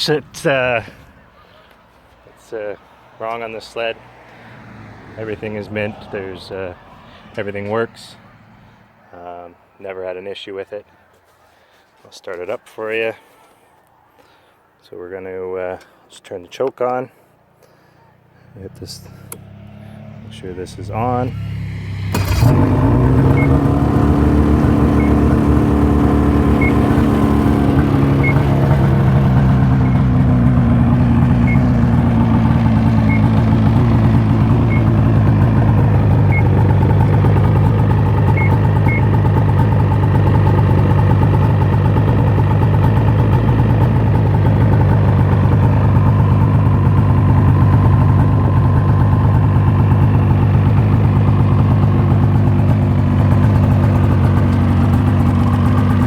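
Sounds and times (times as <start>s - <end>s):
snowmobile engine idling: 22.1s - 56.0s.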